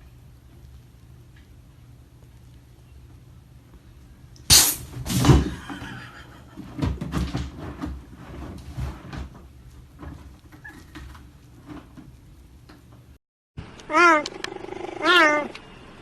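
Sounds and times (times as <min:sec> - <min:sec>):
household objects knocking and clattering: 0:05.2 - 0:10.3.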